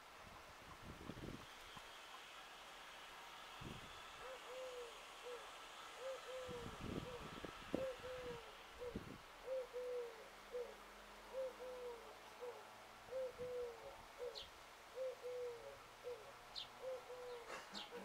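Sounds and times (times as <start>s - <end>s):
bird hooting coos: 4.2s - 18.0s.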